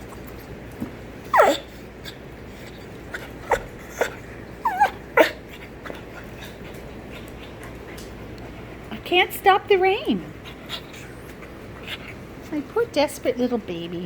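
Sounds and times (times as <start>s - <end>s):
dog whimpering and whining: 1.3s - 7.6s, 10.4s - 12.3s.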